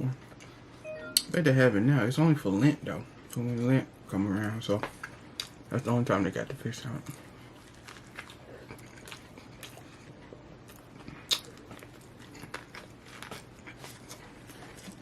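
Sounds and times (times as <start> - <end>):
person chewing crunchy food: 7.0 - 15.0.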